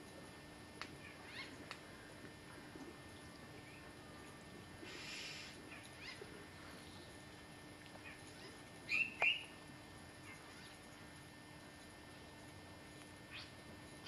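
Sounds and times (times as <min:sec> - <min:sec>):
faint outdoor ambience: 0:00.0 - 0:14.0
bird chirps: 0:08.9 - 0:09.5.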